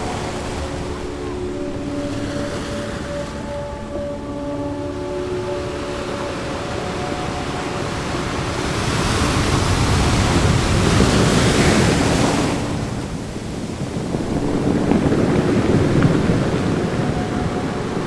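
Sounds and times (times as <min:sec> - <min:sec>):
ocean waves washing in: 0:00.0 - 0:18.0.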